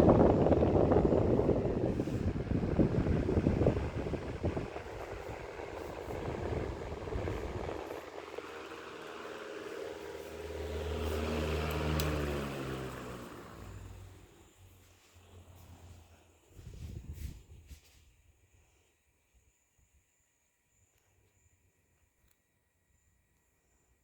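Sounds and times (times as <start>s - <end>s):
table fan rattling whir: 0.0s - 14.4s.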